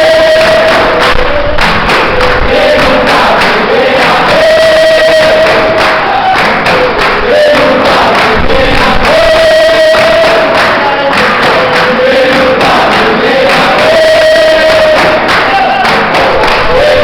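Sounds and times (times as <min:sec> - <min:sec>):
group singing chorus: 0:00.0 - 0:17.0
percussion strikes: 0:00.0 - 0:17.0.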